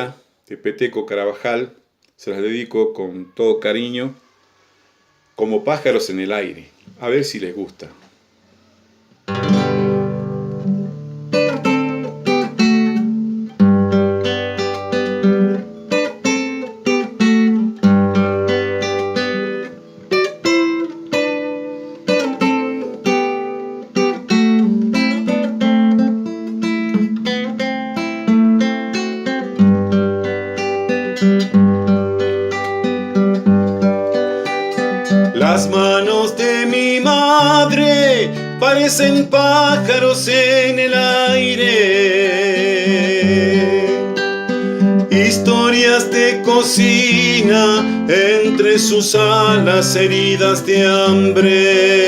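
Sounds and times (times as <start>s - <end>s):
acoustic guitar playing: 8.4s - 52.0s.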